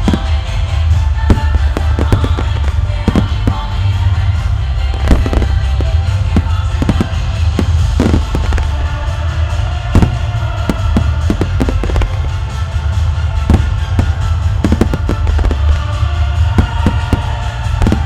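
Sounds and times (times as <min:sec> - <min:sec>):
fireworks shells bursting: 0:00.0 - 0:00.6, 0:01.3 - 0:04.0, 0:04.9 - 0:09.1, 0:09.8 - 0:12.6, 0:13.4 - 0:15.8, 0:16.5 - 0:18.0
orchestral music: 0:00.0 - 0:18.0.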